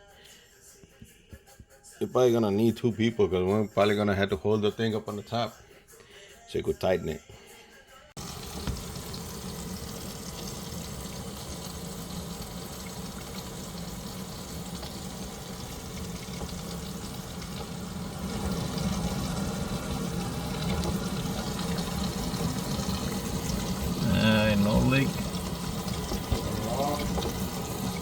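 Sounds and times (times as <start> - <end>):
water running into sink: 8.2 - 28.0.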